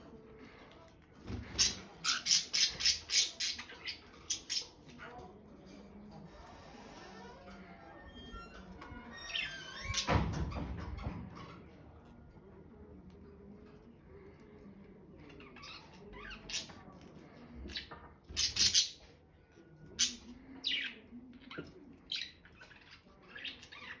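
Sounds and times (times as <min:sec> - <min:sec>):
parrots squawking and chirping: 0:01.4 - 0:05.2, 0:17.7 - 0:19.1.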